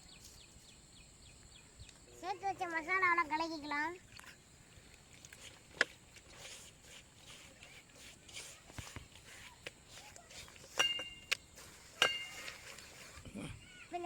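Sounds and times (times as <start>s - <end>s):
paste mixed by hand: 5.1s - 13.2s.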